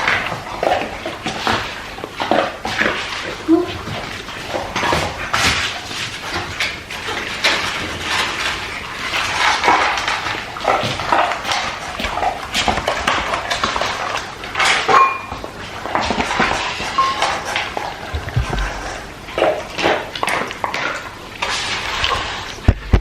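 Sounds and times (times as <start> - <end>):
dog crunching kibble: 0.0 - 23.0.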